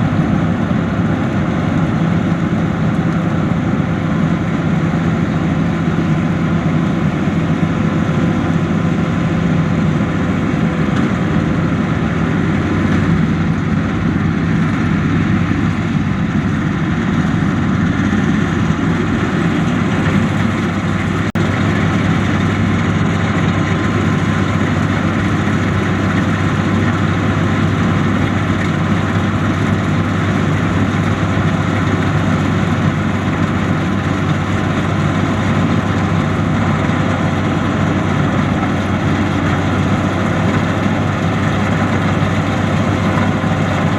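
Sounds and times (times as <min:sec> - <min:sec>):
combine harvester engine drone: 0:00.0 - 0:43.9.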